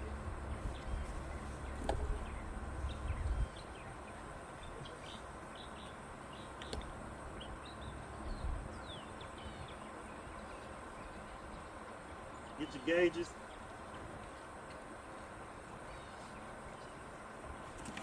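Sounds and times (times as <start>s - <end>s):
low rumble: 0.0s - 4.1s
birds chirping: 0.0s - 17.8s
faint steady hum: 0.0s - 18.0s.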